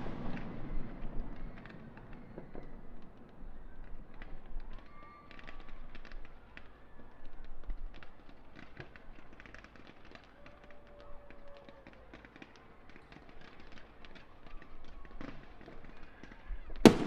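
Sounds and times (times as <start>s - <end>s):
distant firework pops: 0.0s - 6.8s, 7.6s - 17.0s
firework crackling: 5.3s - 17.0s.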